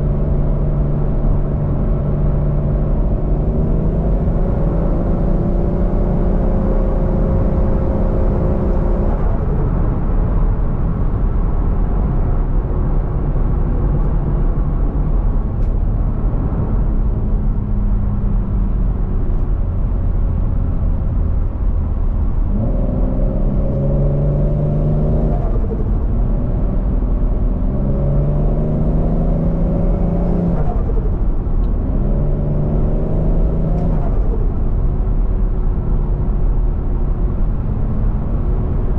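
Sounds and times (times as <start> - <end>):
turbocharged car engine revving: 22.5 - 34.4.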